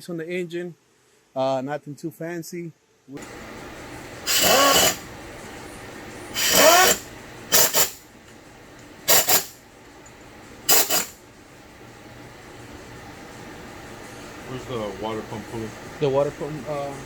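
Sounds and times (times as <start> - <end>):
steady garage hum: 3.1 - 17.0
power tool bursts: 4.2 - 5.1, 6.3 - 8.0, 9.0 - 9.6, 10.7 - 11.2.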